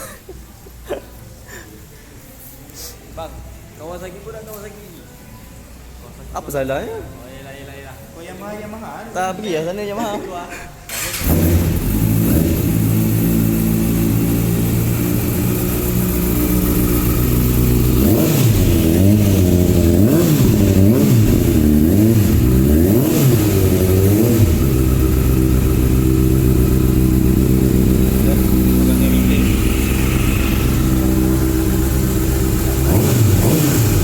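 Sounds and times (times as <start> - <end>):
motorcycle engine revving: 10.9 - 34.0.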